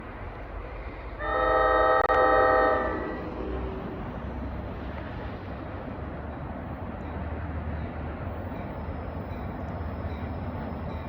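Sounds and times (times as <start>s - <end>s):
low rumble of train: 0.0s - 11.0s
train horn chord: 1.2s - 3.4s.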